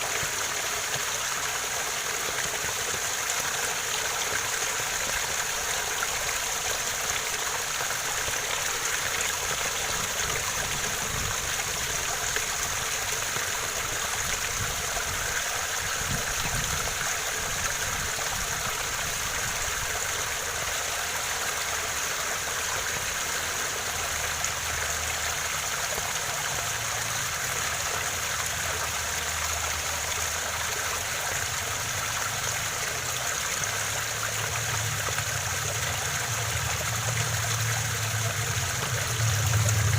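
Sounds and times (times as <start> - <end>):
waterfall splashing: 0.0 - 39.9.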